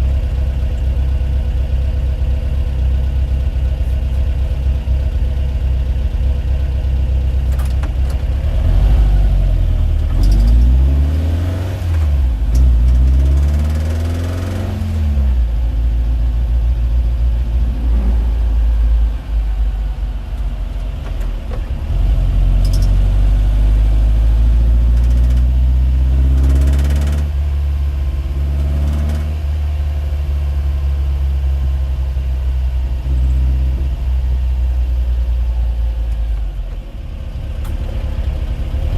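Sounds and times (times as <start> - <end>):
vehicle engine revving: 8.3 - 15.6, 17.4 - 20.2, 21.6 - 30.7.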